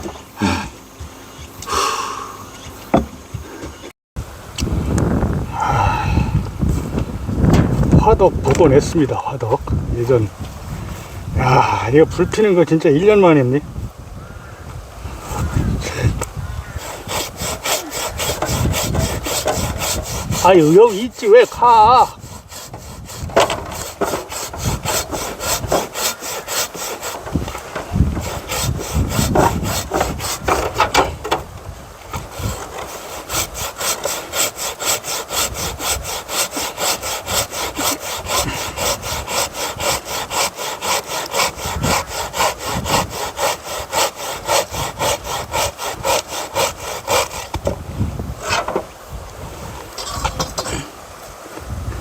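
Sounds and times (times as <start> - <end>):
hand saw cutting wood: 15.3 - 31.5, 32.1 - 47.8, 48.4 - 48.9, 50.0 - 50.8.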